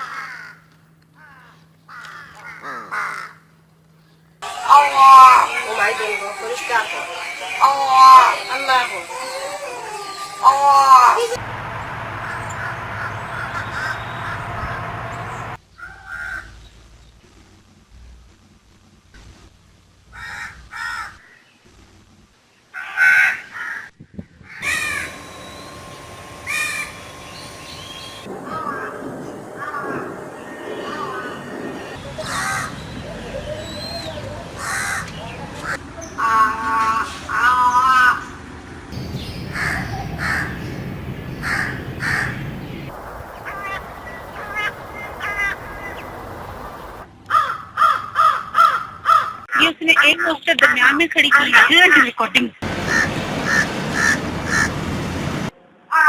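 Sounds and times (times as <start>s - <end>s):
bird calling: 4.4s - 16.5s, 24.6s - 29.0s, 29.6s - 38.3s, 39.0s - 49.4s, 51.2s - 54.7s.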